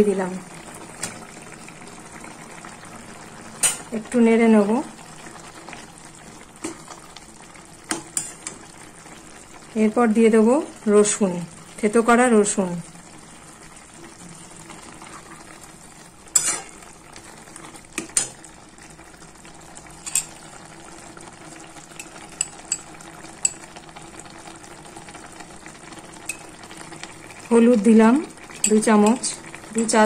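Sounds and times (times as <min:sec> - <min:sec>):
fish frying with soft sizzle: 0:00.0 - 0:30.0
metal spatula scraping pan: 0:16.3 - 0:16.9.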